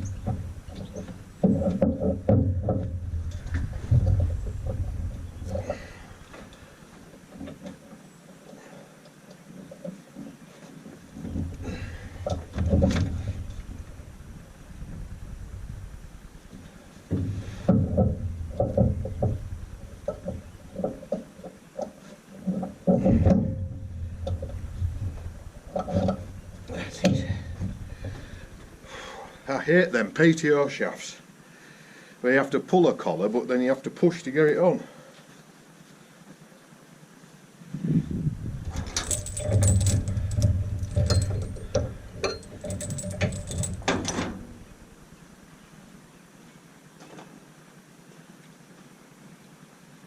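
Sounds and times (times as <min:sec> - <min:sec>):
metal clunks and knocks: 0:00.0 - 0:05.8, 0:11.2 - 0:13.6, 0:17.1 - 0:21.3, 0:22.4 - 0:28.4, 0:38.7 - 0:44.8
low rumble: 0:13.0 - 0:16.8
metal clinking and clanking: 0:17.6 - 0:21.1, 0:22.4 - 0:28.8, 0:38.7 - 0:44.9.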